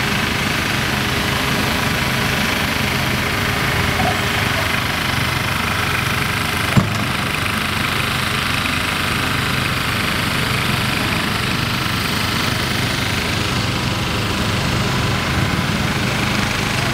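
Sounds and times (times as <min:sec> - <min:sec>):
diesel engine running: 0:00.0 - 0:16.9
sharp knock: 0:06.8 - 0:07.3.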